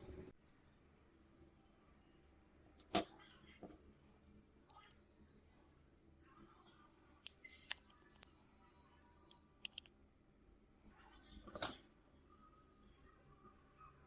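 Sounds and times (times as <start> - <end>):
tools and parts clicking: 9.3 - 9.9, 11.5 - 11.8.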